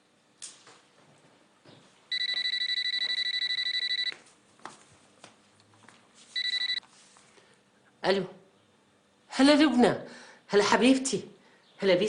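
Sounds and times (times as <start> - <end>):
telephone ringing: 2.1 - 4.2, 6.4 - 6.8.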